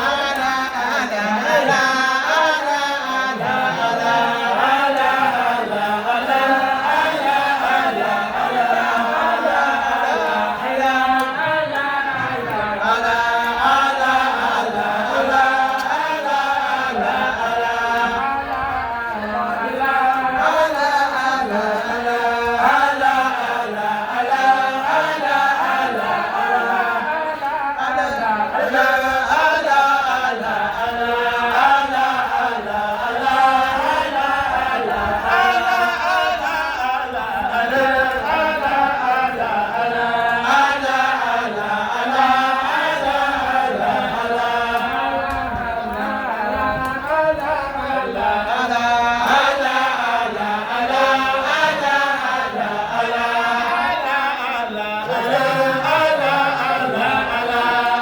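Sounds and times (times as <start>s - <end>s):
group chanting devotional praise: 0.0s - 58.0s.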